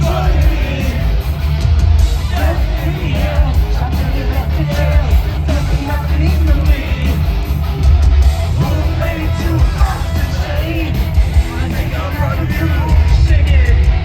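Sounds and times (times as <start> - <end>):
bass and drums: 0.0 - 14.0
distorted electric guitars: 0.0 - 14.0
person singing: 8.6 - 13.9.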